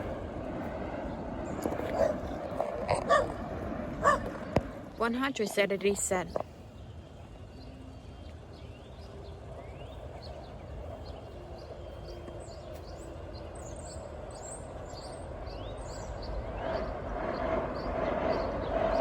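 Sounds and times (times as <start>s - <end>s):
steady background rumble: 0.0s - 19.0s
small birds chirping: 4.0s - 19.0s.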